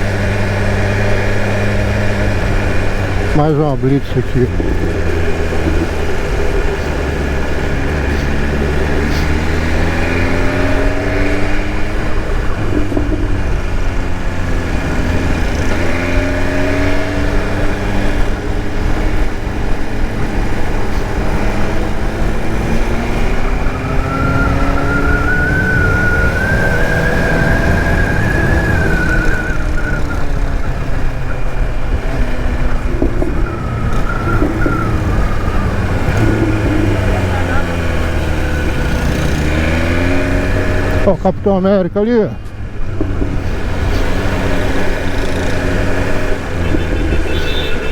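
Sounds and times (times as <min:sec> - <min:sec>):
low riding rumble: 0:00.0 - 0:47.9
motorcycle engine revving: 0:00.0 - 0:47.9
wavering high tone: 0:15.1 - 0:41.1.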